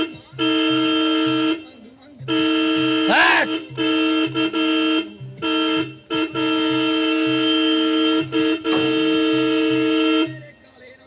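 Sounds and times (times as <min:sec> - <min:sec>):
vehicle horn honking: 0:03.8 - 0:10.3.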